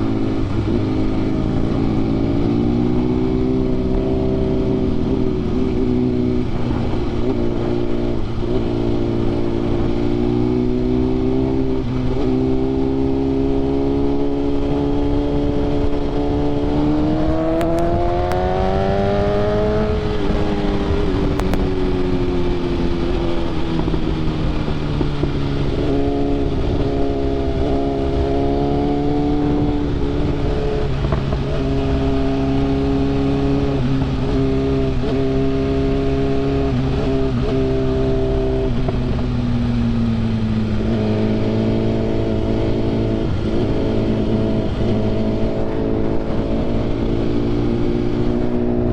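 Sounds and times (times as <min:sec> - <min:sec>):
motorcycle engine running: 0:00.0 - 0:48.9
wind noise: 0:00.0 - 0:48.9.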